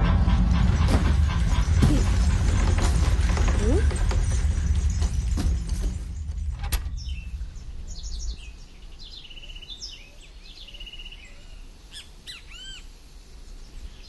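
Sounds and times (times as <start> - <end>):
low background rumble: 0.0 - 10.6
birds chirping: 0.0 - 14.0.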